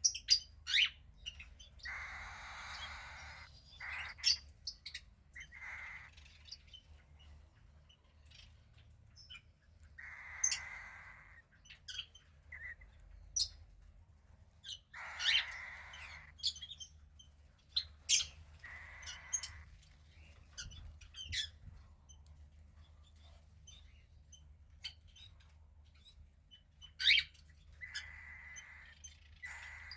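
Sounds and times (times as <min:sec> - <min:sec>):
cockatiel chick raspy calls: 0:01.8 - 0:06.4, 0:10.0 - 0:11.5, 0:15.0 - 0:16.7, 0:18.1 - 0:19.7, 0:27.0 - 0:29.9.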